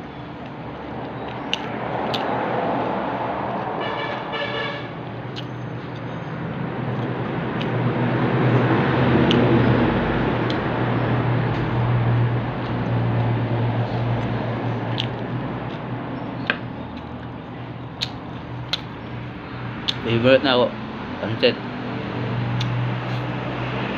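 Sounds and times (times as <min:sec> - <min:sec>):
low hum and rushing noise: 0:00.0 - 0:23.9
person chewing: 0:01.2 - 0:02.3, 0:05.3 - 0:07.8, 0:08.4 - 0:09.5, 0:10.4 - 0:10.7, 0:14.0 - 0:15.9, 0:17.9 - 0:18.9.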